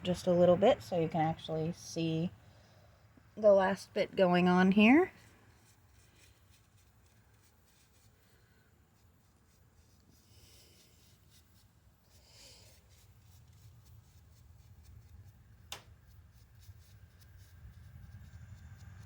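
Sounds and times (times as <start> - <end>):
paintbrush scratching on concrete: 5.2 - 19.0.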